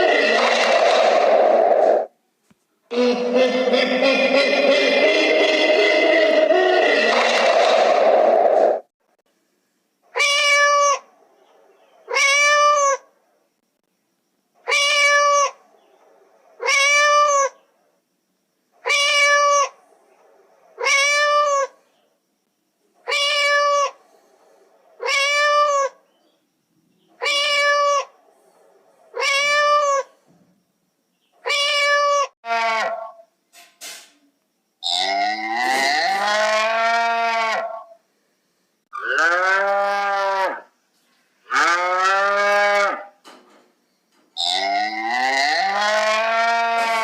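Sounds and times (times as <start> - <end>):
cat meowing: 10.2 - 11.0, 12.1 - 13.0, 14.7 - 15.6, 16.6 - 17.5, 18.8 - 19.7, 20.8 - 21.7, 23.1 - 24.0, 25.0 - 26.0, 27.2 - 28.1, 29.1 - 30.1, 31.4 - 32.9.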